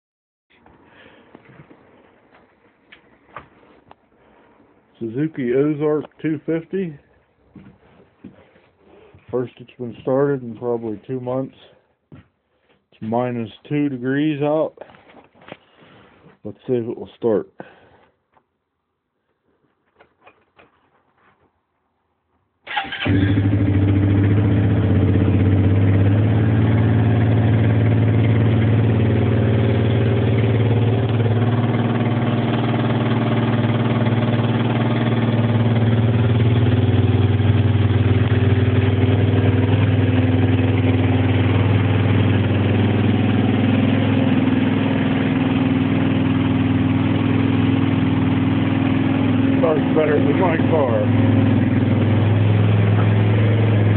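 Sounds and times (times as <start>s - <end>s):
atv engine starting and idling: 22.7s - 53.9s.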